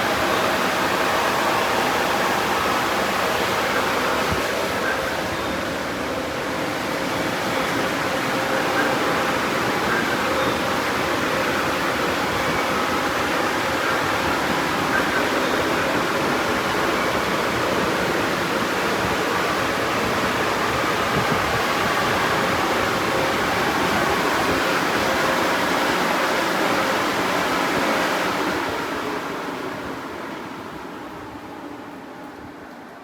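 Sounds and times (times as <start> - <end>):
car wash dryer blowers: 0.0 - 33.0.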